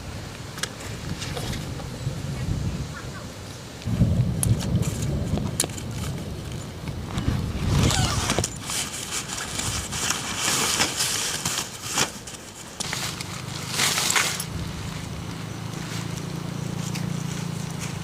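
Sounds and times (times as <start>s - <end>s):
rustling and scraping: 0.6s - 1.9s, 4.4s - 18.0s
steady low hum: 12.2s - 18.0s.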